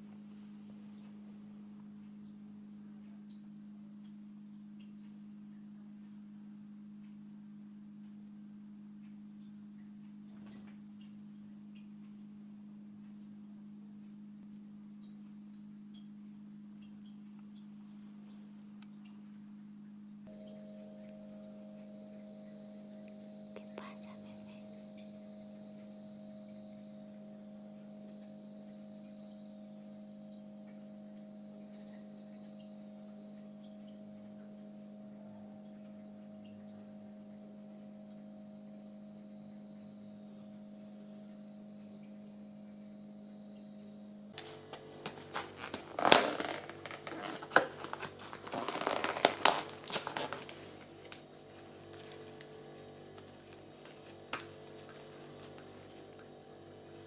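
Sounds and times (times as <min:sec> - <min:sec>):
low electrical hum: 0:00.0 - 0:57.0
objects clattering and rustling: 0:44.4 - 0:56.2.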